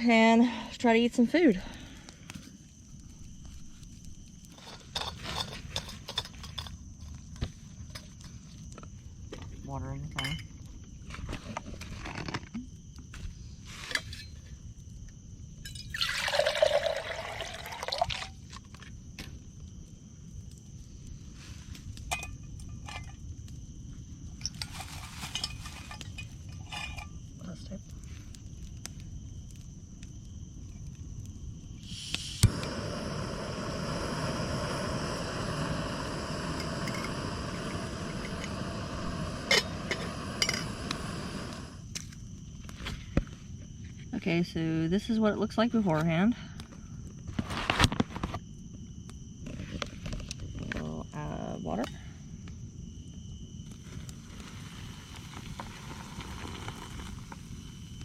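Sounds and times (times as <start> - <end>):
camp stove burner hissing: 0.0 - 9.5, 15.6 - 19.3, 20.9 - 43.6, 52.6 - 58.0
water pouring into pan: 15.9 - 18.3.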